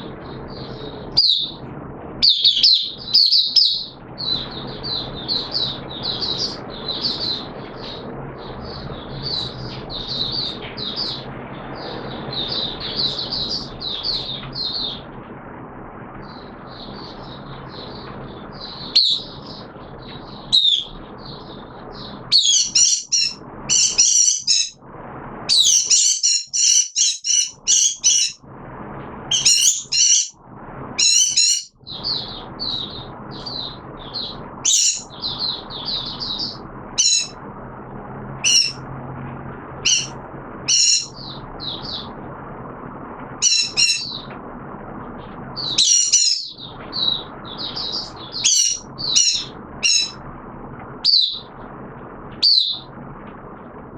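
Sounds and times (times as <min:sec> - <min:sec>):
steady low hum: 0:00.0 - 0:53.9
songbird twittering: 0:16.2 - 0:24.8, 0:29.3 - 0:30.3, 0:31.0 - 0:37.4, 0:38.4 - 0:38.8, 0:39.8 - 0:42.1, 0:43.4 - 0:44.3, 0:45.6 - 0:50.2.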